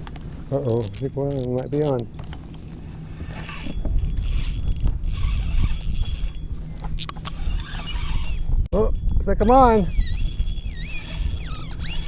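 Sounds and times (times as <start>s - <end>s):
wind rumble on microphone: 0.0s - 12.0s
fishing reel scraping and clicking: 0.5s - 2.4s, 3.2s - 12.0s.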